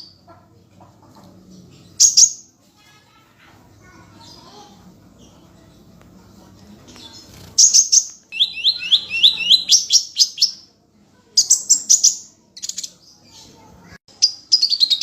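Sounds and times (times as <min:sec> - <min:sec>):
songbird singing: 0:06.9 - 0:10.7, 0:11.4 - 0:15.0.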